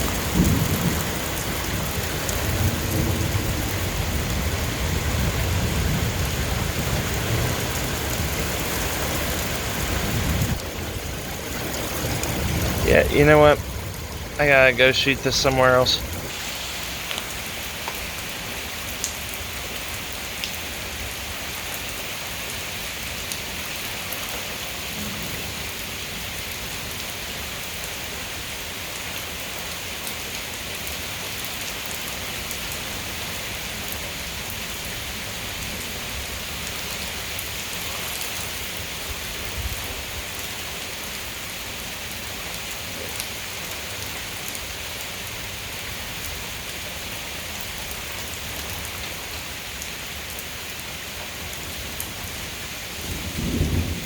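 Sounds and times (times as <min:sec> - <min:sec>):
heavy rain hissing: 0:00.0 - 0:31.5, 0:32.1 - 0:54.0
rain drop clicks: 0:17.0 - 0:20.6.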